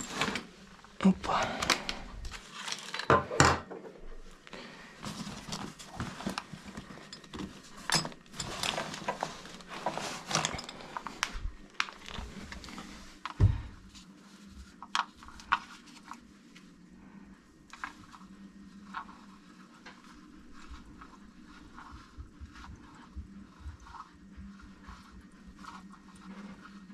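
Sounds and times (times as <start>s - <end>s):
tools and metal parts clicking: 7.1s - 9.0s.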